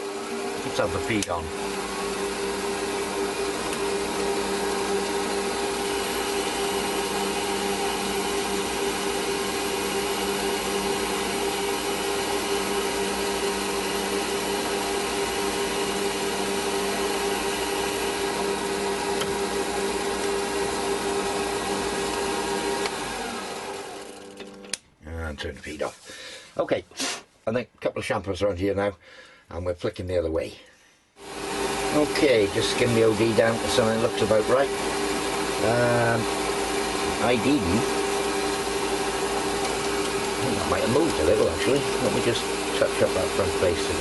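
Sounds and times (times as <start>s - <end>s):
metal lathe motor hum: 0.0s - 24.6s, 31.2s - 44.0s.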